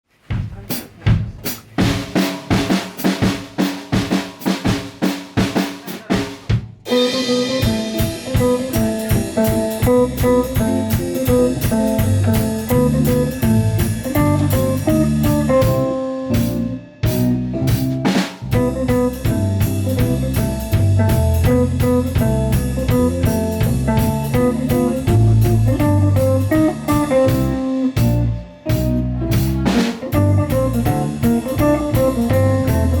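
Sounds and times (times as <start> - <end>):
drum kit playing: 0.1 - 33.0
bass: 0.3 - 33.0
pop-jazz band music: 6.8 - 33.0.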